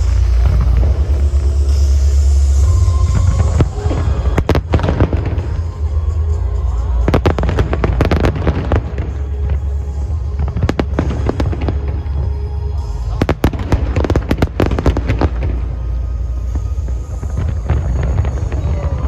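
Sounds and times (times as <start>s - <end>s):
fireworks bursting and crackling: 0.0s - 19.0s
loud music with heavy bass: 0.0s - 19.0s.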